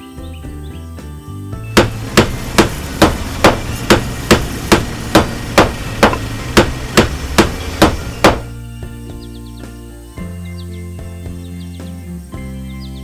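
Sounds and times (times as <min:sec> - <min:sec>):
hammer strikes: 0:01.8 - 0:08.5.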